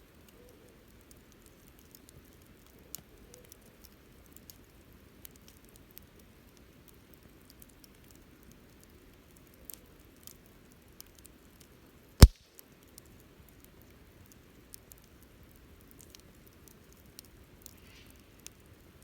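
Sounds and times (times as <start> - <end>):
wood fire crackling: 14.2 - 19.0.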